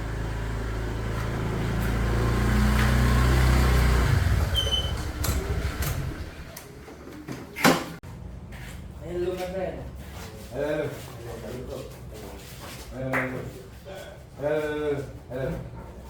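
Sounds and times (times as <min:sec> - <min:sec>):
motorcycle engine running: 0:00.0 - 0:07.5.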